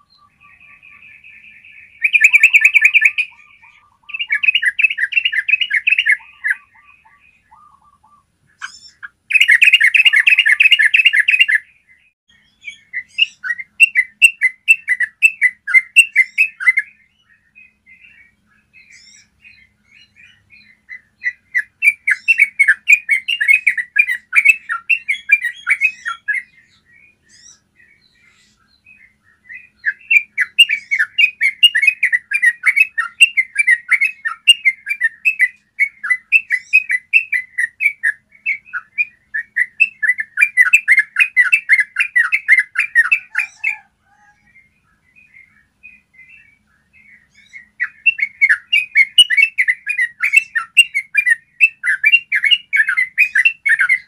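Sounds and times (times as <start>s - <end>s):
bulbul rapid chattering song: 0.0s - 11.6s.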